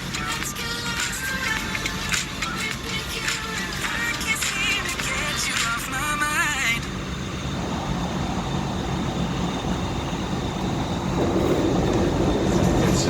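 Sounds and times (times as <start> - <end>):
pop song with singing: 0.0 - 7.0
airliner cabin rumble and hiss: 0.0 - 13.0.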